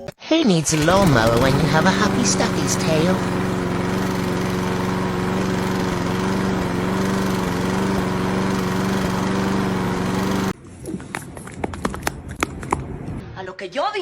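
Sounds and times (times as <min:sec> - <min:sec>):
lawn mower engine running: 0:00.6 - 0:10.6.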